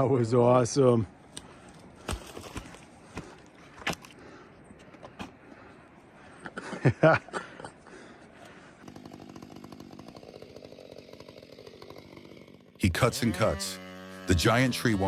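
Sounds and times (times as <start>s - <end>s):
chainsaw running: 7.9s - 15.0s.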